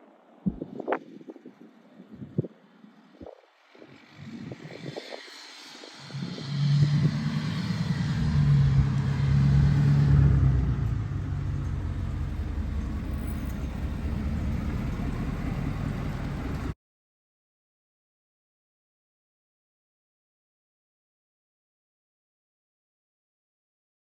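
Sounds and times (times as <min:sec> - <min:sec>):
vehicle engine and road rumble: 0:00.0 - 0:16.8.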